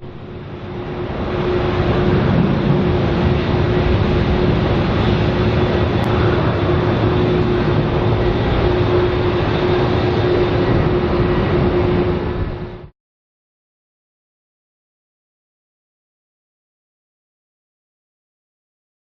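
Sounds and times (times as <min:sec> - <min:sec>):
jet engine roar: 0:00.0 - 0:12.9.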